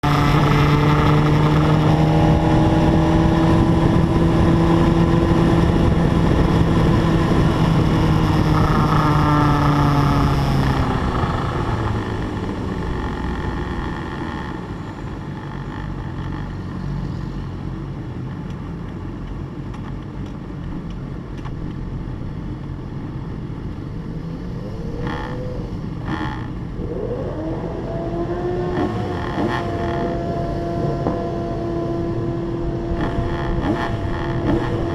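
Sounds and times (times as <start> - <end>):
racing motorcycle engine: 0.0 - 17.0, 24.0 - 34.9.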